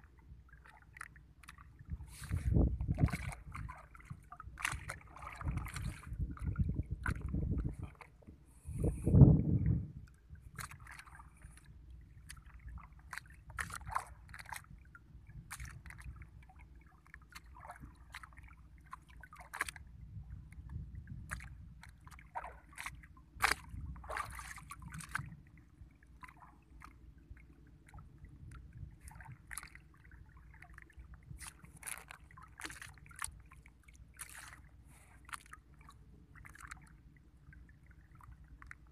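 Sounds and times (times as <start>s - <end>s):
water sloshing around boat: 0.0s - 38.9s
splashes and knocks: 0.6s - 8.4s, 10.4s - 19.9s, 20.7s - 27.0s, 27.8s - 36.9s.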